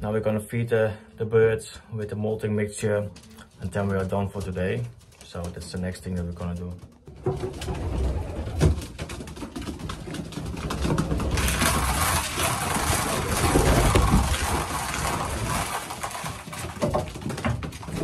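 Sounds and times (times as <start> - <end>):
grain pouring into feeders: 10.7 - 18.0.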